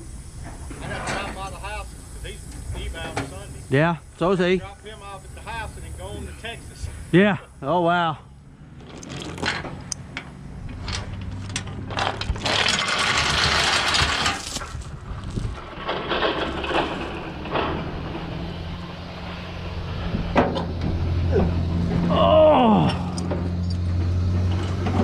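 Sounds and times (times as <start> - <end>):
loud air hiss: 0.0 - 7.6
truck engine idling: 0.0 - 7.6
clicks and knocks: 8.8 - 14.9.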